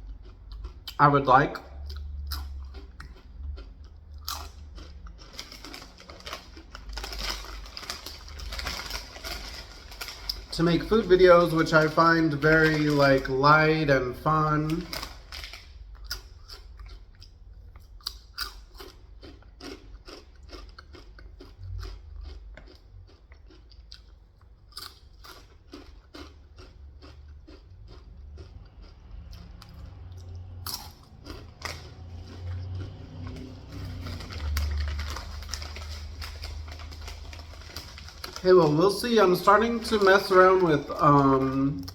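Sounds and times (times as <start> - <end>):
chewing pizza: 0.0 - 41.9
small clicks and crackles: 5.2 - 13.3, 14.7 - 15.7, 31.4 - 41.9.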